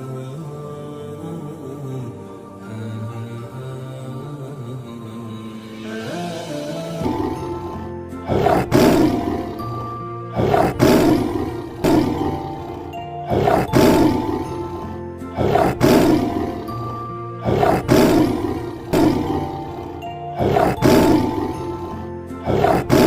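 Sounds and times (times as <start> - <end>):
background music: 0.0 - 23.0
harsh animal roar: 7.0 - 23.0.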